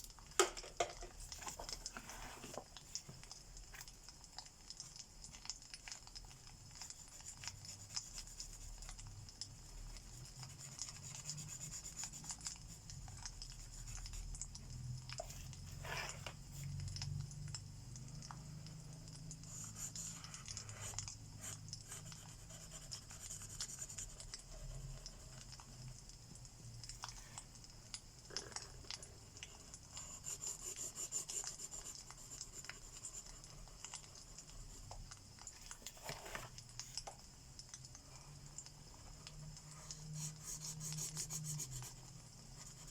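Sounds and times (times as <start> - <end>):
marker scratching on paper: 10.1 - 12.6, 15.2 - 16.4, 35.8 - 36.5, 39.9 - 42.9.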